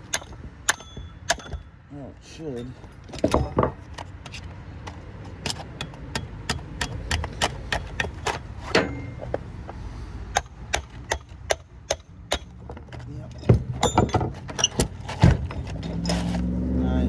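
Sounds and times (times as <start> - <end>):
metallic clinks and taps of tools: 0.0 - 1.7, 11.9 - 16.5.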